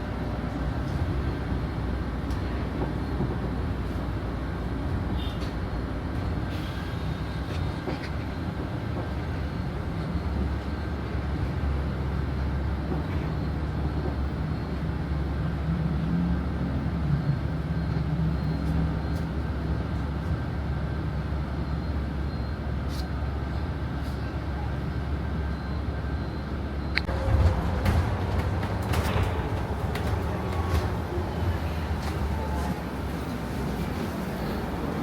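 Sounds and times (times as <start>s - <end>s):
bus engine and road rumble: 0.0s - 35.0s.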